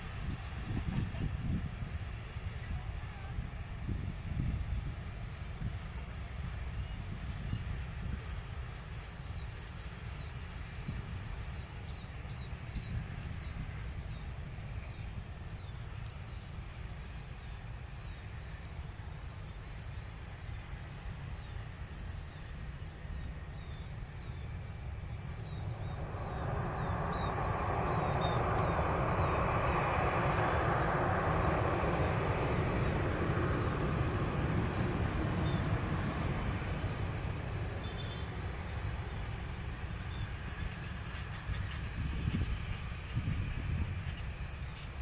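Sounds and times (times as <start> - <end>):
aircraft flying over: 0.0 - 45.0
low rumble: 24.1 - 40.5.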